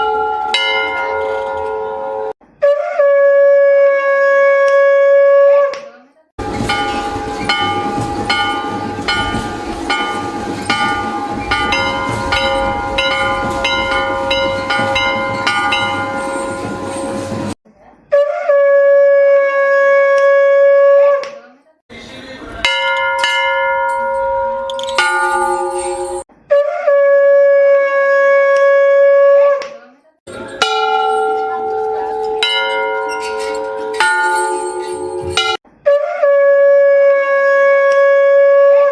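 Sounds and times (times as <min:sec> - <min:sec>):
temple bells ringing: 0:00.0 - 0:02.3, 0:06.4 - 0:17.6, 0:22.6 - 0:26.3, 0:30.3 - 0:35.6.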